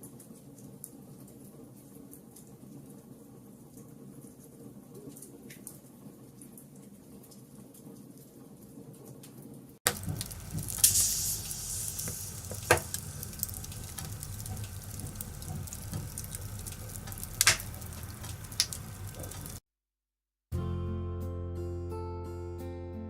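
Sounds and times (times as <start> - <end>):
wood fire crackling and popping: 9.9 - 19.6.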